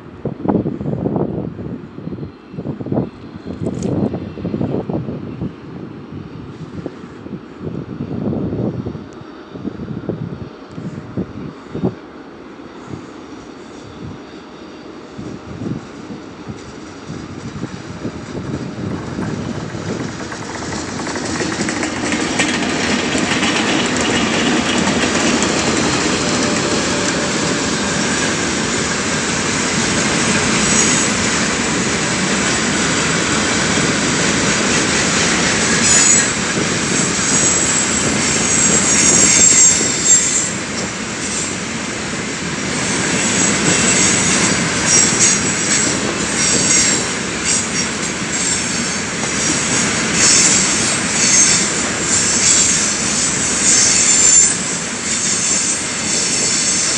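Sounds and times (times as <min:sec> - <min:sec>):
freight train rumbling past: 0:00.0 - 0:56.9
wheels squealing: 0:18.4 - 0:29.0, 0:34.6 - 0:41.6, 0:42.8 - 0:56.9.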